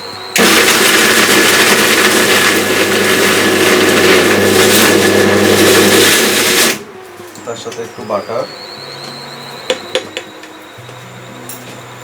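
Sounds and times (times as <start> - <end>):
mixer grinder motor whirring: 0.0 - 7.0.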